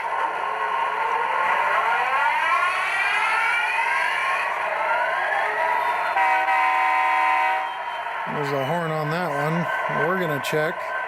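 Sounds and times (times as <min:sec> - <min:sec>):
locomotive horn chord: 0:06.1 - 0:07.6.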